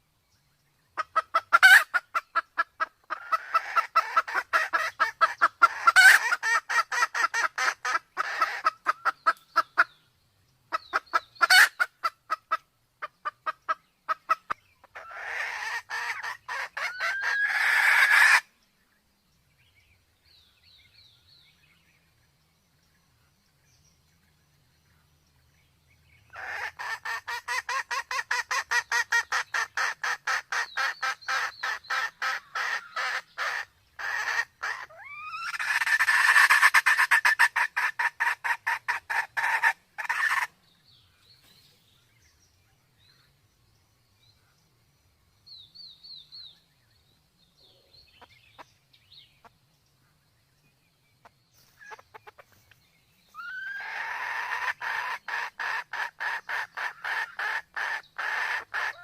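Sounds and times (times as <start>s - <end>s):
junglefowl clucking: 1.0s - 10.0s, 10.7s - 18.5s, 26.3s - 40.5s, 51.7s - 52.7s, 53.4s - 59.0s
junglefowl rising call: 53.4s - 59.0s.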